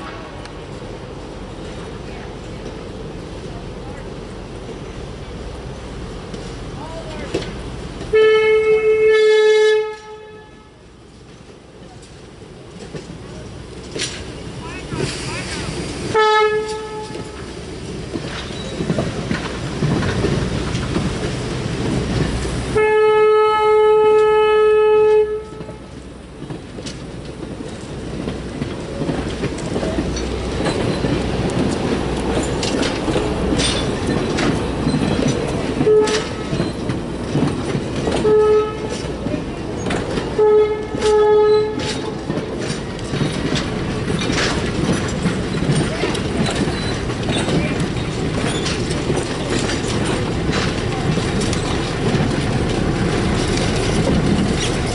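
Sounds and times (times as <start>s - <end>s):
rail clicks: 0.0s - 54.9s
train rumbling by: 0.0s - 54.9s
locomotive horn: 8.1s - 10.8s, 16.1s - 17.4s, 22.7s - 25.9s, 35.8s - 36.6s, 38.2s - 39.1s, 40.3s - 42.0s.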